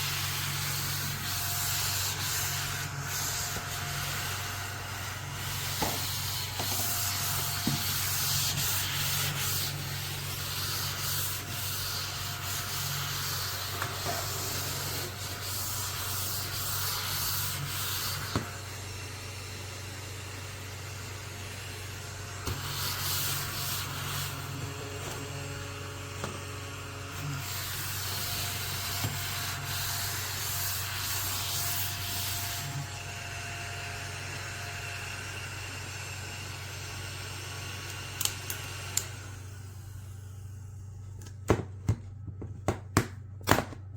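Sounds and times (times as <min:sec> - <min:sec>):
bristles scrubbing hard surface: 0:00.0 - 0:04.4, 0:05.4 - 0:18.3
mini vacuum humming: 0:00.0 - 0:40.9.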